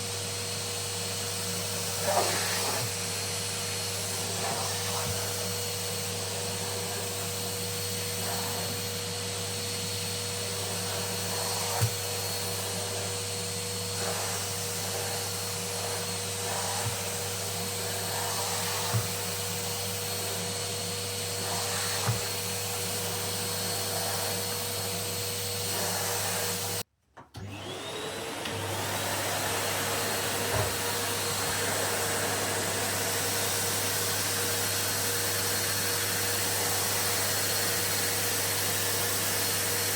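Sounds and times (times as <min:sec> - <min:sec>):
vacuum cleaner whining: 0:00.0 - 0:39.9
vacuum motor starting up: 0:01.4 - 0:39.9.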